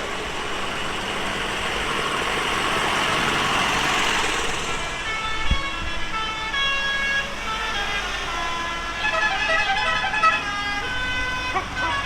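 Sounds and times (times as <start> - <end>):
low engine rumble: 0.0 - 12.0
vehicle horns sounding: 4.8 - 12.0.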